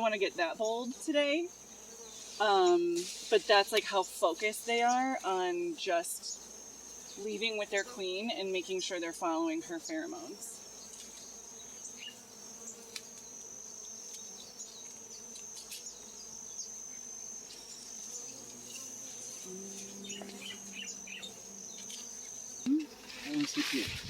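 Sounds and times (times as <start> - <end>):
honeybee swarm buzzing: 0.0 - 24.0
single bees buzzing close by: 0.0 - 24.0
high-pitched insect tone: 9.4 - 24.0.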